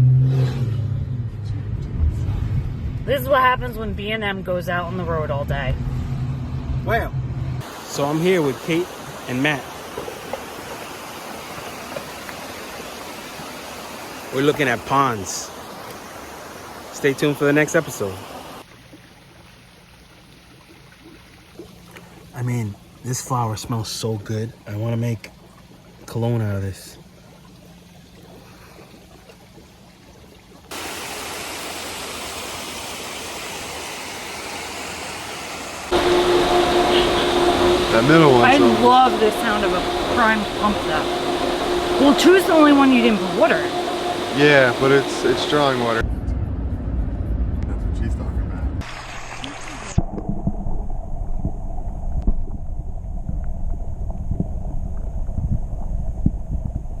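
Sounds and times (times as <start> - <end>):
pond pump rumbling: 6.9 - 46.0
waterfall rushing: 7.6 - 18.6, 30.7 - 46.0.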